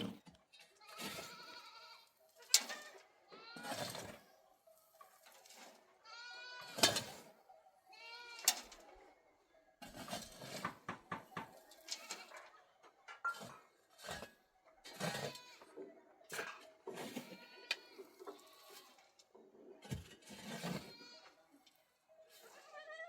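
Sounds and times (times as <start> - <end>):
goats bleating: 0.8 - 3.7.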